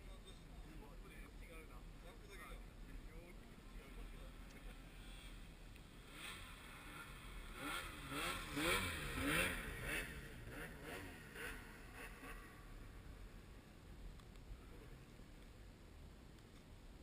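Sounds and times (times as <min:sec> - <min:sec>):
snowmobile engine revving: 0:06.0 - 0:13.4.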